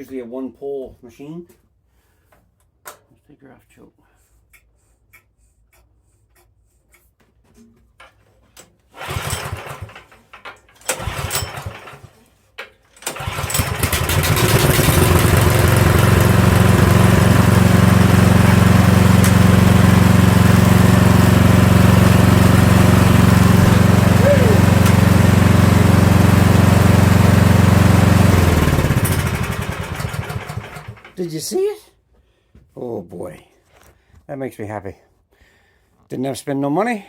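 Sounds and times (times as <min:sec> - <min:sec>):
recoil starter pulls: 0:08.9 - 0:12.2, 0:12.9 - 0:31.2
small engine running: 0:09.0 - 0:10.2, 0:10.9 - 0:12.1, 0:13.1 - 0:31.1.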